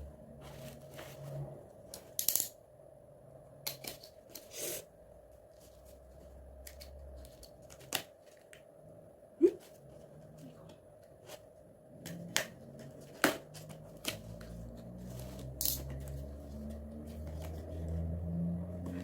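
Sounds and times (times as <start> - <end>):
hands clicking and tapping packaging: 12.0 - 14.6.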